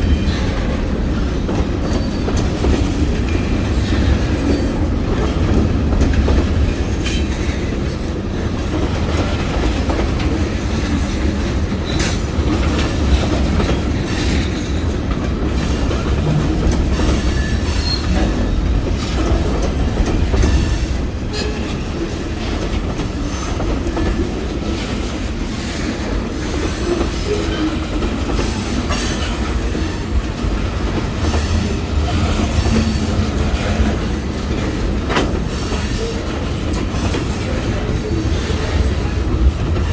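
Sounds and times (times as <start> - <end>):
train wheel squeal: 0.0 - 4.8, 10.7 - 15.0, 15.6 - 19.7, 20.4 - 22.2, 25.5 - 30.2
freight train rumbling past: 0.0 - 39.9.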